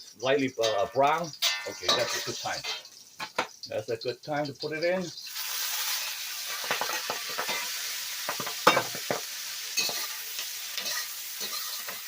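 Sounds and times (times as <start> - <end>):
vegetables sizzling in hot oil: 0.0 - 12.0
spatula scraping and clinking pan: 0.6 - 3.6, 6.5 - 12.0.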